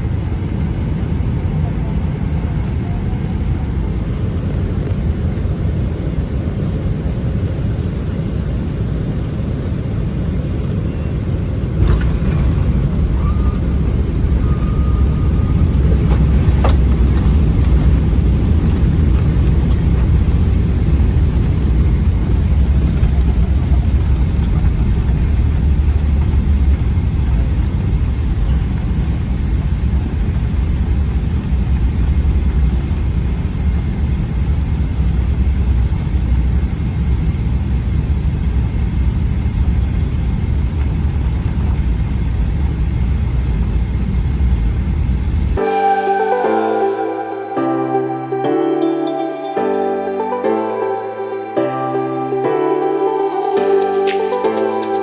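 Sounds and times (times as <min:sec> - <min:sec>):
airplane cabin engine rumble: 0:00.0 - 0:46.0
faint short tone: 0:11.8 - 0:18.0.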